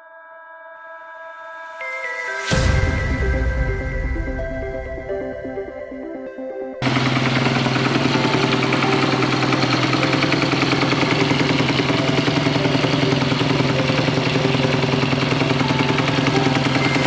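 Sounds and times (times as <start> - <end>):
motorcycle engine idling: 6.8 - 17.0.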